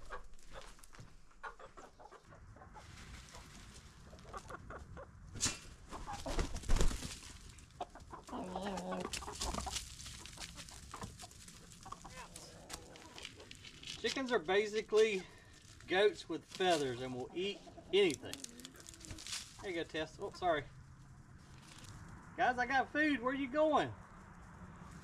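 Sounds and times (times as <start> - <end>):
chickens clucking: 0.0 - 6.8, 7.4 - 20.6.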